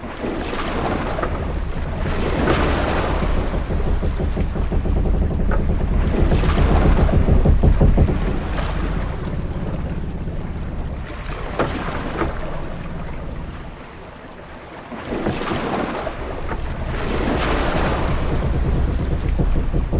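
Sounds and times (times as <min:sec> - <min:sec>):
wind and waves rumbling: 0:00.0 - 0:19.9.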